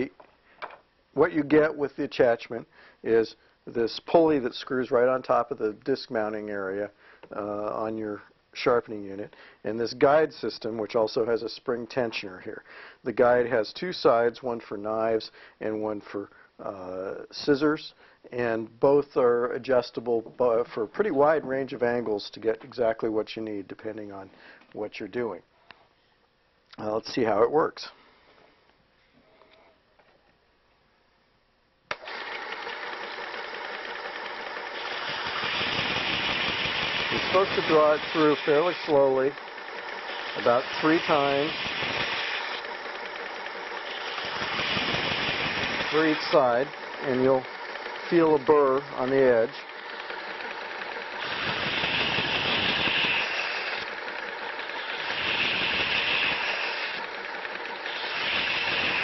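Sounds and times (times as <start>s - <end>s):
belt sharpener motor running: 31.9s - 59.0s
knife grinding on belt: 40.1s - 42.7s, 51.2s - 53.9s, 54.8s - 57.1s.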